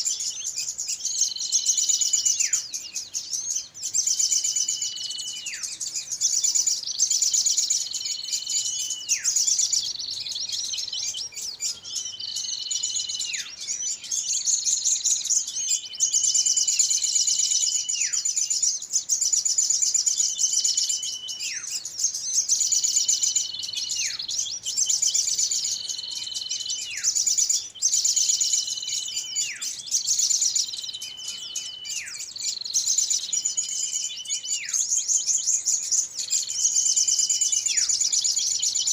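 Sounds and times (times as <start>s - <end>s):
small birds chattering: 0.0s - 38.9s
whistled call dropping in pitch: 30.4s - 32.4s.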